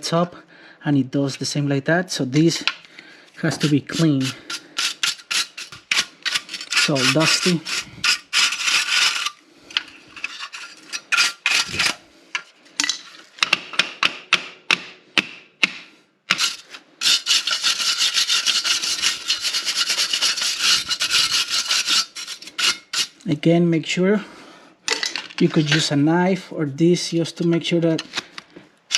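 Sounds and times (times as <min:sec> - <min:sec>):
scrubbing on metal burners: 0:03.4 - 0:12.0, 0:16.3 - 0:23.2.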